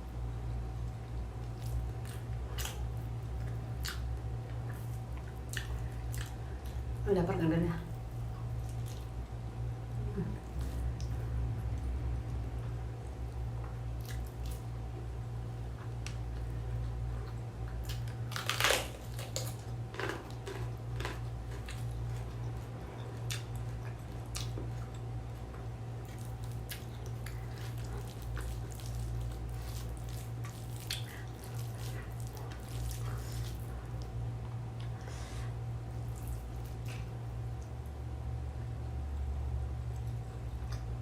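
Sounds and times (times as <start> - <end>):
low hum: 0.0 - 41.0
wet chewing and mouth smacks: 0.9 - 6.9, 13.6 - 15.0, 15.7 - 35.1, 35.9 - 37.8, 39.9 - 41.0.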